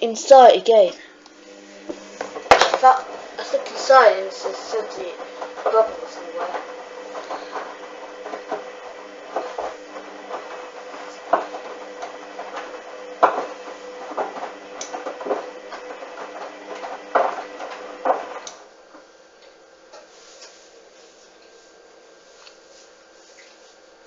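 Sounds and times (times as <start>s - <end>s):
washing machine motor whine: 0.0s - 18.9s.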